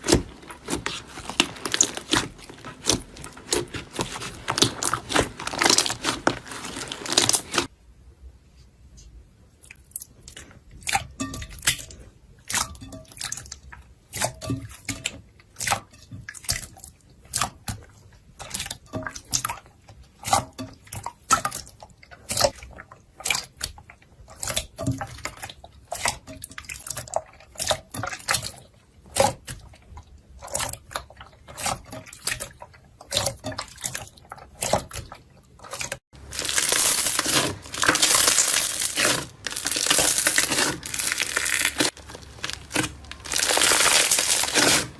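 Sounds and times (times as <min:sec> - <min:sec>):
crunching: 0:00.0 - 0:07.7, 0:36.2 - 0:44.9.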